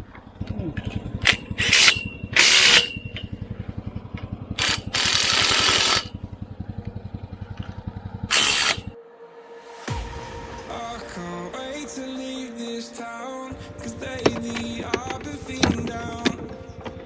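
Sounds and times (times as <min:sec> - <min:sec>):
impact driver hammering bolts: 0:04.6 - 0:06.1, 0:13.6 - 0:17.0.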